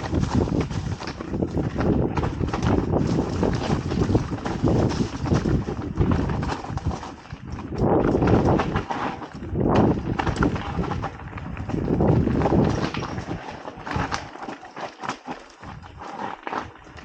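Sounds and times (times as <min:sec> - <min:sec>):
bike rattling: 0:00.0 - 0:17.0
bike tyres rumbling over rocks: 0:00.0 - 0:17.0.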